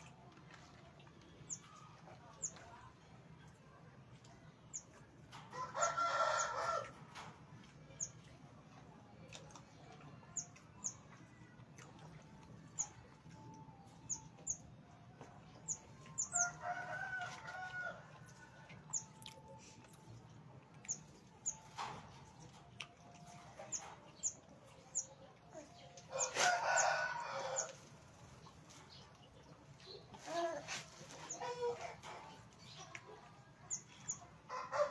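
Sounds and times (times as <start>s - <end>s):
rooster crowing: 5.6s - 6.9s, 26.2s - 27.8s.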